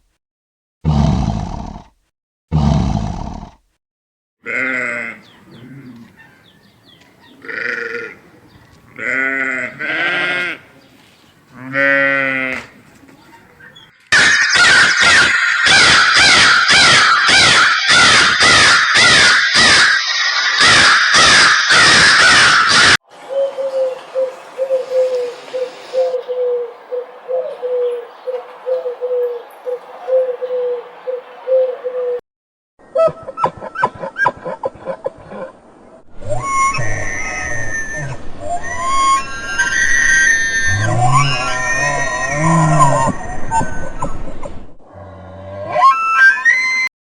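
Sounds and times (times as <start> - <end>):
big cat roars: 0.9 - 1.9, 2.5 - 3.6
pitched bleating calls: 4.4 - 6.1, 7.4 - 8.2, 8.9 - 10.7, 11.5 - 12.7, 39.6 - 43.2
loud rapid chirping: 14.2 - 23.0, 38.6 - 43.5
pigeon cooing: 23.3 - 32.2.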